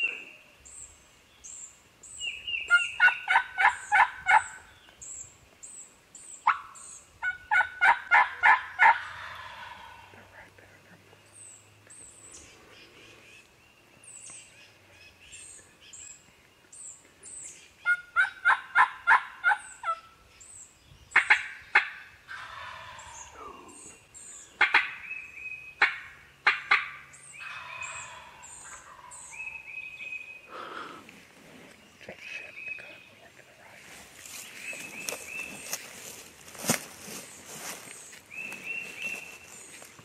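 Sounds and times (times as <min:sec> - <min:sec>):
songbirds chirping: 0:00.0 - 0:40.0
turkey yelps: 0:02.7 - 0:04.6, 0:06.4 - 0:10.2, 0:17.8 - 0:20.0, 0:24.6 - 0:25.0, 0:25.8 - 0:29.2.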